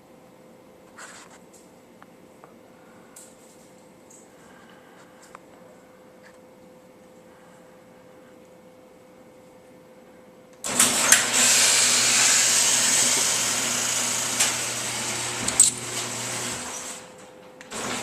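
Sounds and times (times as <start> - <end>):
garage door motor hum: 10.6 - 18.0
moving garage door: 10.6 - 18.0.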